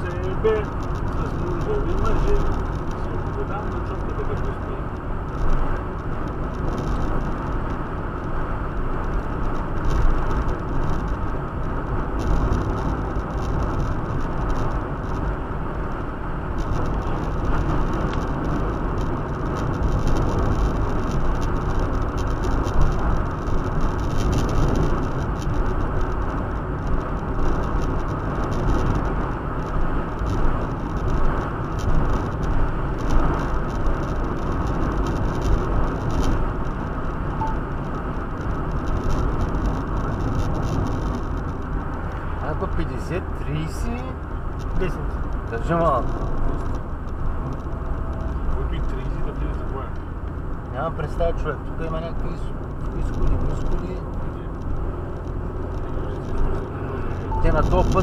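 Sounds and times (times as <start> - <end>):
car cabin road and engine noise: 0.0 - 58.0.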